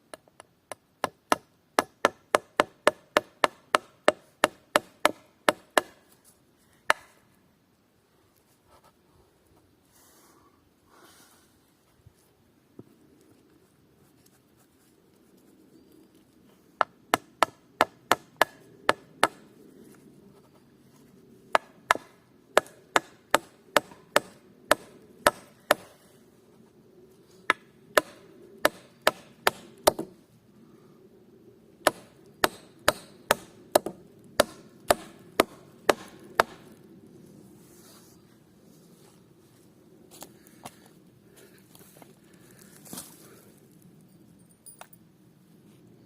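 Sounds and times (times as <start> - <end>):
hammer driving nails into wood: 31.9 - 36.6.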